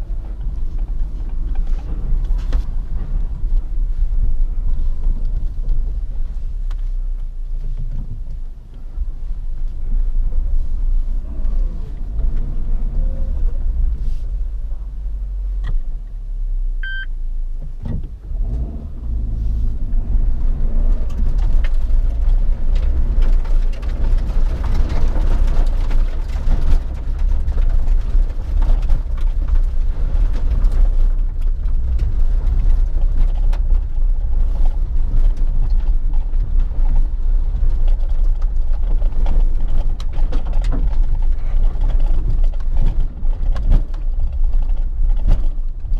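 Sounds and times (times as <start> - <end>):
car engine rumbling: 0.0 - 45.9
brief high tone: 16.8 - 17.1.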